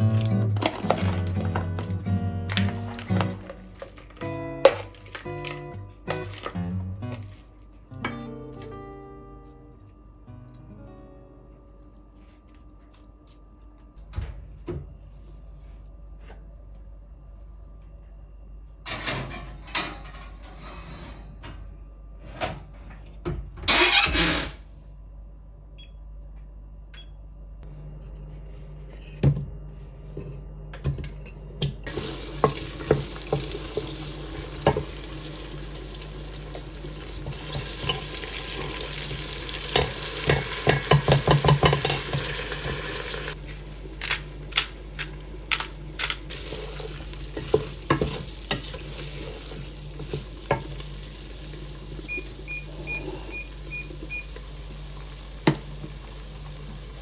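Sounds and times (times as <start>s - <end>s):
utensils and dishes clinking: 0.0s - 8.8s, 30.2s - 50.8s
food sizzling in a frying pan: 31.9s - 43.4s, 46.3s - 57.0s
utensil tapping a pan: 39.8s - 42.4s.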